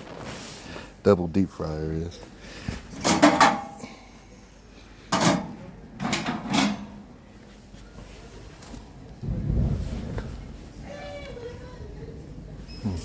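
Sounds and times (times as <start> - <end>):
objects knocking and rattling: 2.8 - 3.8, 5.1 - 7.1.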